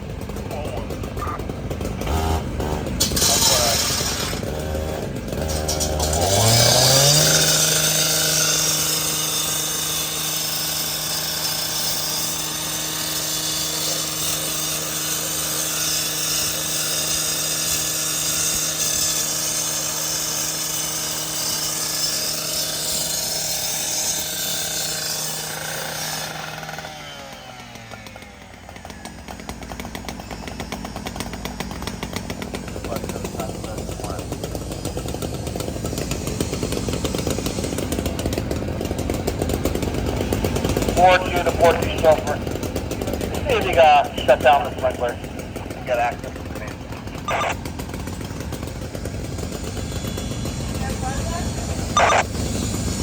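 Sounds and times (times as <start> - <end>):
machine motor whining: 1.1 - 38.6, 51.7 - 52.4.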